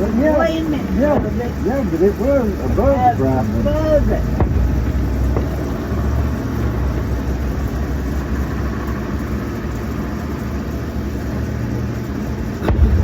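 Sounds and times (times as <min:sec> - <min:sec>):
low rumble of distant fireworks: 0:00.0 - 0:13.0
sharp firework bang: 0:04.3 - 0:05.7, 0:12.6 - 0:13.0.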